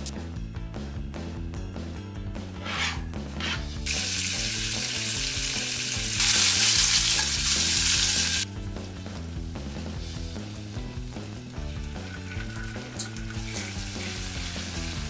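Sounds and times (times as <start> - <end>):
background music: 0.0 - 15.0
sausage frying in oil: 3.8 - 8.5, 9.8 - 15.0.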